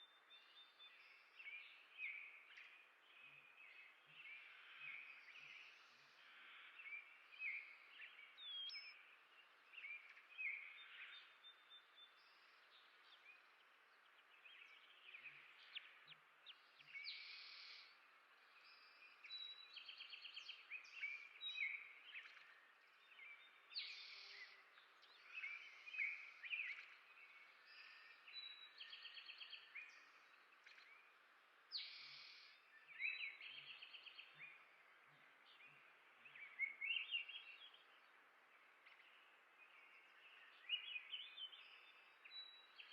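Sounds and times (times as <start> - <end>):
songbirds chirping: 0.0 - 42.9.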